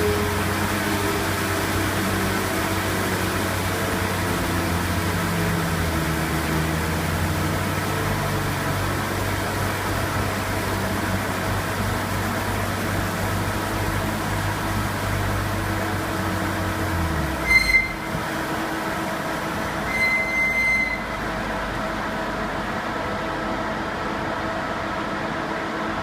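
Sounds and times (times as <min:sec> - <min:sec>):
car engine low drone: 0:00.0 - 0:26.0
steady mechanical hum: 0:00.0 - 0:26.0
short high squeals: 0:17.3 - 0:18.2, 0:19.8 - 0:21.3.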